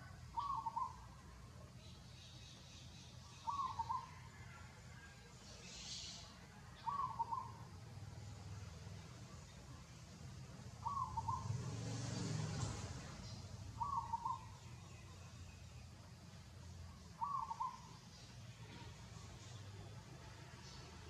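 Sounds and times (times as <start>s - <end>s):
bird cooing call: 0.0s - 1.1s, 3.3s - 4.7s, 5.7s - 7.8s, 10.8s - 11.8s, 13.7s - 14.7s, 17.2s - 18.1s.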